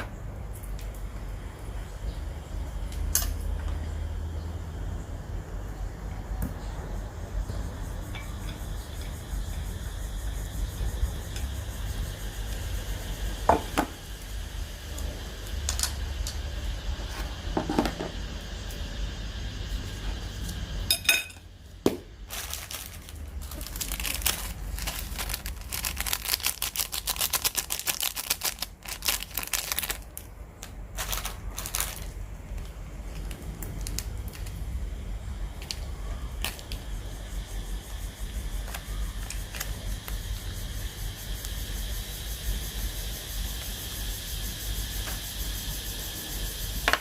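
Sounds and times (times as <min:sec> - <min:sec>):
clicks taps and crinkles: 0:00.0 - 0:01.1, 0:21.8 - 0:34.6
steady low hum: 0:00.0 - 0:47.0.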